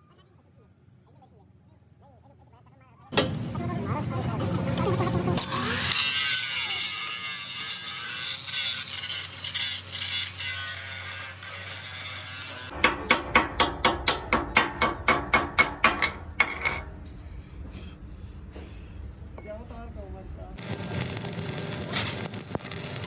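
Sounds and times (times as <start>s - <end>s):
high-pitched metal grinding: 3.2s - 17.0s.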